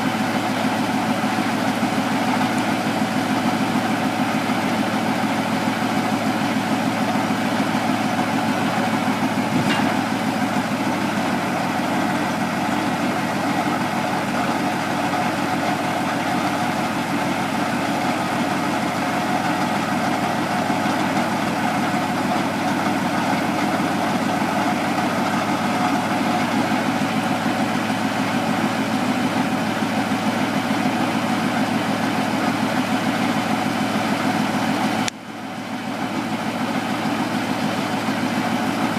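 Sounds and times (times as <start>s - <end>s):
truck engine idling: 0.0s - 38.9s.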